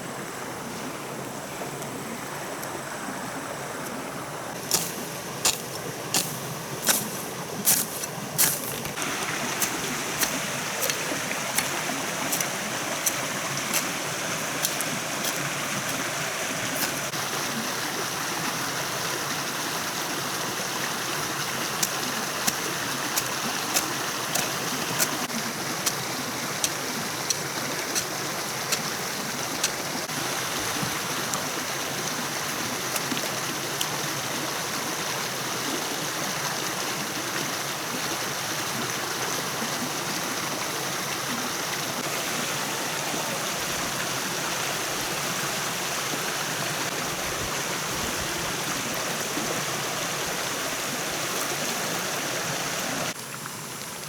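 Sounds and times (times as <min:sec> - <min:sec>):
running water rushing: 0:00.0 - 0:54.0.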